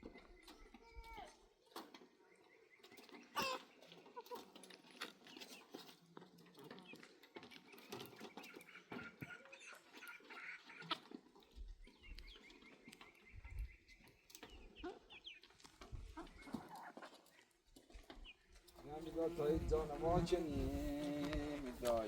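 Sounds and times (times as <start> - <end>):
faint bird calls: 2.1 - 4.6.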